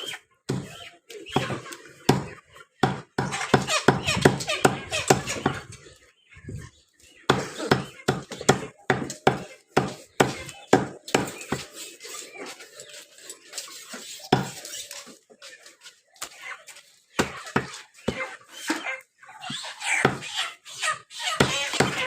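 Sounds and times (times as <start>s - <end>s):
cleaver chopping chicken: 0.5s - 5.5s, 7.3s - 11.8s, 14.3s - 14.6s, 21.4s - 22.0s.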